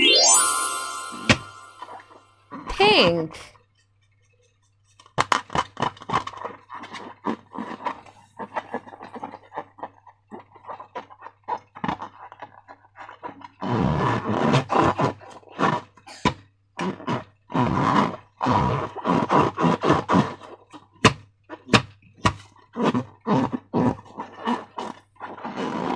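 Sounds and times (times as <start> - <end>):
slime squelching: 5.2 - 16.0, 18.2 - 25.9.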